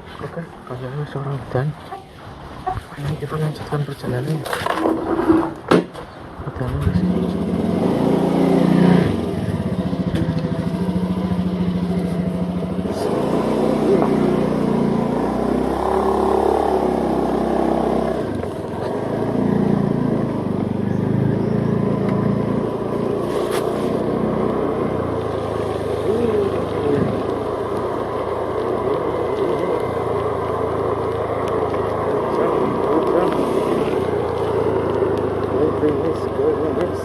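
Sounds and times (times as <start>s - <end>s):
motorcycle engine running: 6.9s - 37.0s.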